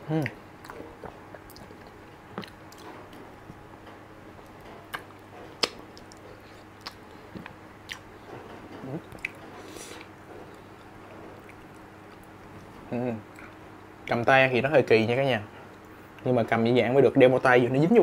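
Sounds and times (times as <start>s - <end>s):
faint low hum: 0.0s - 18.0s
person chewing: 0.2s - 3.0s, 4.4s - 8.1s, 8.8s - 12.7s
wet lip smacks: 0.2s - 3.0s, 4.9s - 8.0s, 9.1s - 10.1s.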